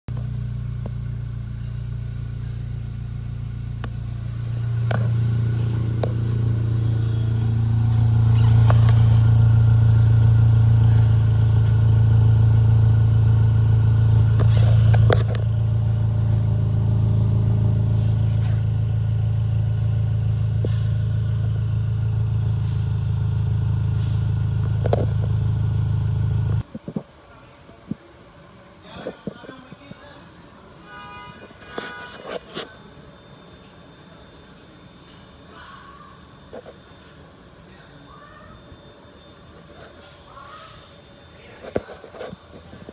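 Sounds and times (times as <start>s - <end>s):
car engine low exhaust drone: 0.1s - 26.7s.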